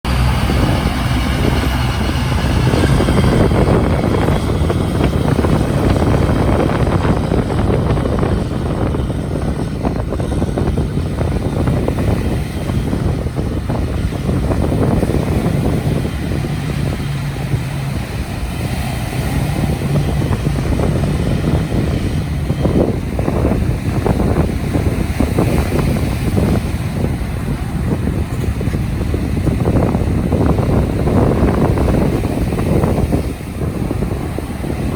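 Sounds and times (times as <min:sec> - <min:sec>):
engine running under load: 0:00.0 - 0:34.9
wind buffeting microphone: 0:00.0 - 0:34.9.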